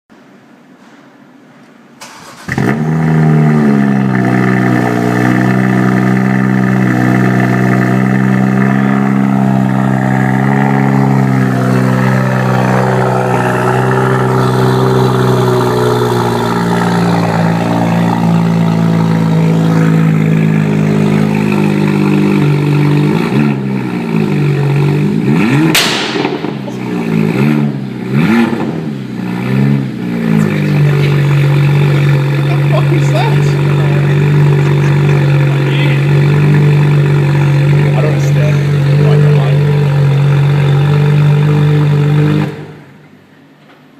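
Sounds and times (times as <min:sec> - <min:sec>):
engine revving: 0:02.0 - 0:43.0
car engine idling: 0:02.0 - 0:43.6
exhaust pop: 0:25.3 - 0:29.2.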